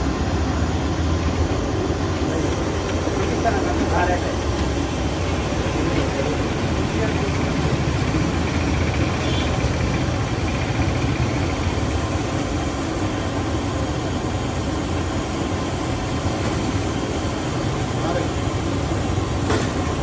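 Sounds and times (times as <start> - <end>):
street background noise: 0.0 - 20.0.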